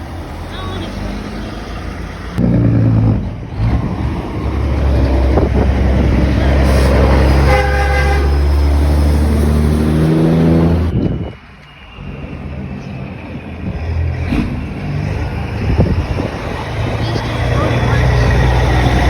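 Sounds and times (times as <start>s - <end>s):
truck air horn blasts: 6.6s - 8.8s.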